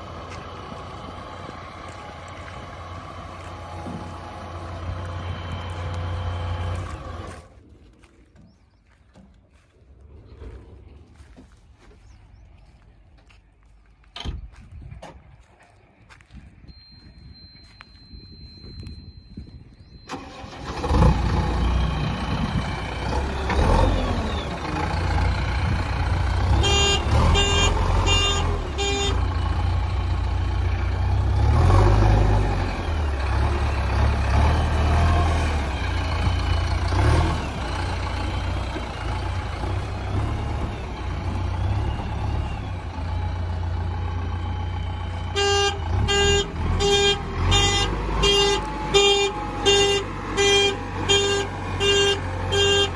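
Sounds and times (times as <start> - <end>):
diesel engine running: 0.0 - 13.7, 16.1 - 52.9
horn beeping: 26.3 - 29.8, 45.0 - 52.9.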